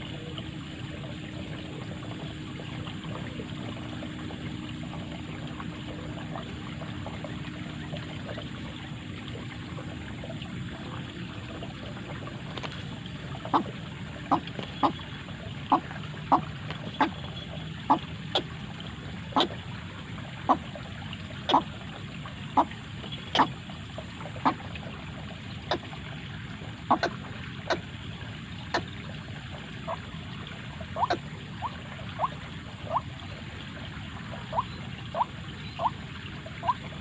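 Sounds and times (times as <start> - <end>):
waterhen calling sharp notes: 14.3 - 18.5.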